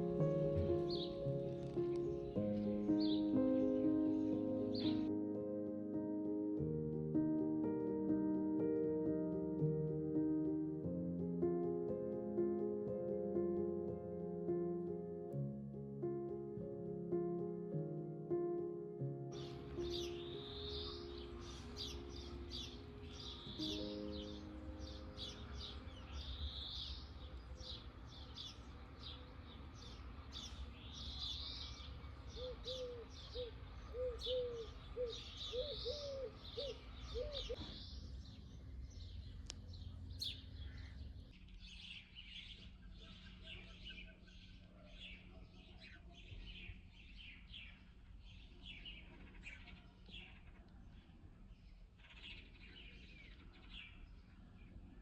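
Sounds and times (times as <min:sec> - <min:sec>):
small birds chirping: 0:00.0 - 0:05.1, 0:19.4 - 0:55.0
lower rounded bird notes: 0:19.3 - 0:45.3.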